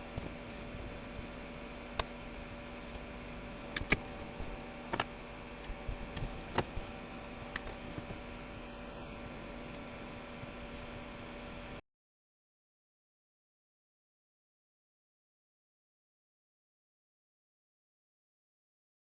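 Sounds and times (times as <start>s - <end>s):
steady background hum: 0.0s - 11.8s.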